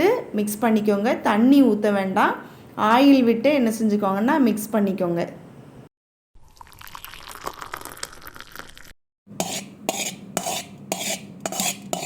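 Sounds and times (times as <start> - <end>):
utensil striking bowl: 9.4 - 12.0.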